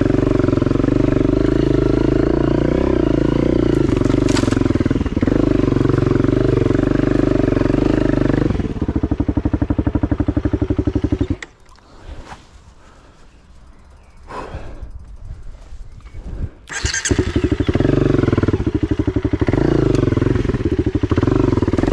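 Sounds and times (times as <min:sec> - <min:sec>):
dirt bike engine running: 0:00.0 - 0:21.9
faint rustling: 0:11.5 - 0:16.8.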